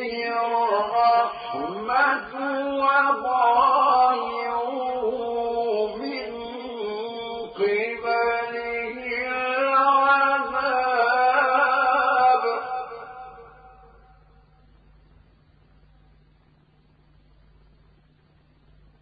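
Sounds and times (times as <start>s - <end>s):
man reciting melodically: 0.0s - 14.2s.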